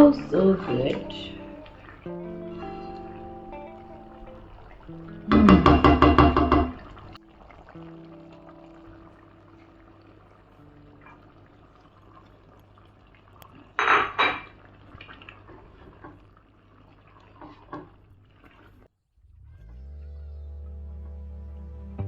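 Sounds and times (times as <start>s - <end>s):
utensil clanking on cooking pot: 5.1s - 7.1s.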